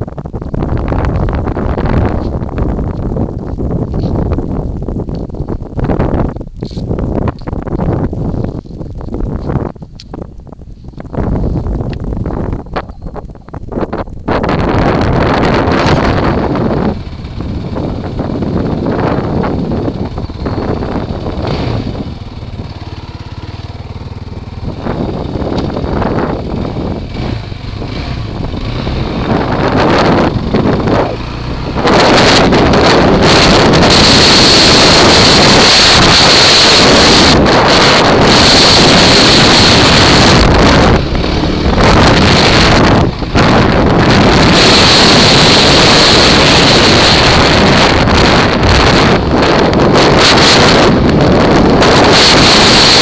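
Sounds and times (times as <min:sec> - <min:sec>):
wind buffeting microphone: 0:00.0 - 0:53.0
quad engine: 0:14.6 - 0:53.0.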